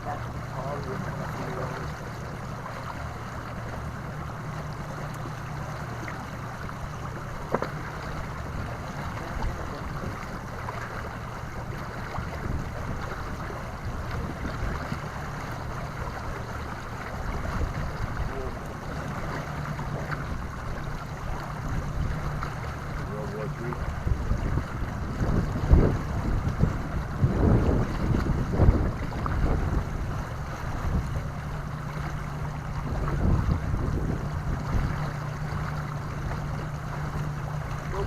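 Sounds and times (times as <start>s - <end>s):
water lapping at hull: 0.0s - 38.0s
wind buffeting boat: 0.0s - 38.0s.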